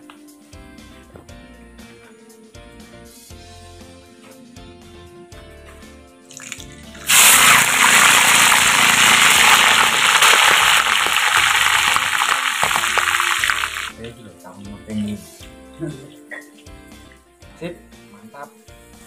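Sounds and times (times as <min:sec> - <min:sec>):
background music: 0:00.0 - 0:19.0
food sizzling in hot oil: 0:06.3 - 0:13.9.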